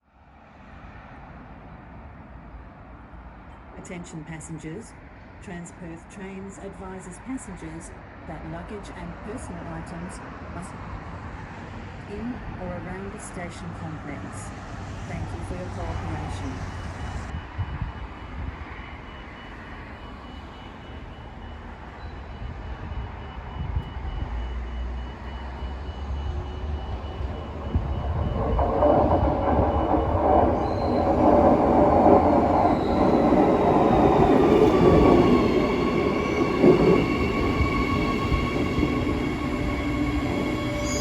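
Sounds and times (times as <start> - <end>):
train brakes squealing: 16.2 - 41.0
train rumble: 21.4 - 41.0.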